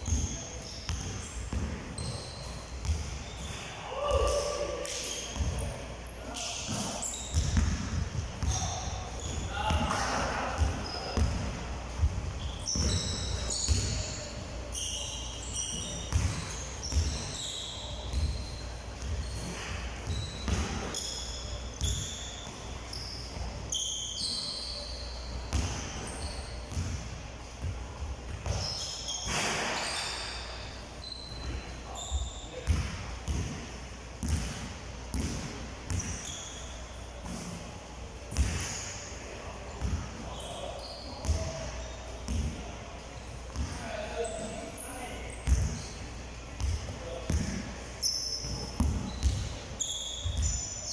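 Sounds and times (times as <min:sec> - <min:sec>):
balls bouncing on court floor: 0:00.0 - 0:05.7, 0:06.3 - 0:14.2, 0:15.6 - 0:21.1, 0:25.5 - 0:29.8, 0:31.4 - 0:36.4, 0:38.3 - 0:38.9, 0:39.8 - 0:40.3, 0:41.2 - 0:42.6, 0:43.5 - 0:44.6, 0:45.4 - 0:45.9, 0:46.6 - 0:47.8, 0:48.4 - 0:49.6, 0:50.2 - 0:50.6
shoes squeaking on floor: 0:00.0 - 0:11.4, 0:12.4 - 0:26.9, 0:28.4 - 0:32.7, 0:35.9 - 0:37.0, 0:39.7 - 0:42.4, 0:43.5 - 0:46.7, 0:48.0 - 0:50.9.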